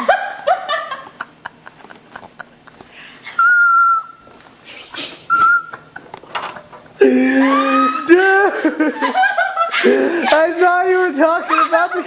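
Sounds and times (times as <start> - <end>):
person squealing laugh: 4.7 - 5.7, 7.0 - 8.8.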